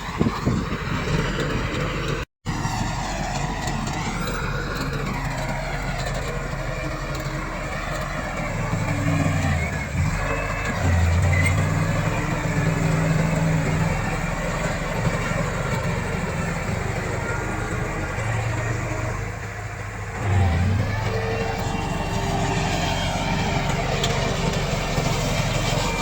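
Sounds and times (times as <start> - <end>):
bulldozer diesel engine running: 0.0 - 26.0.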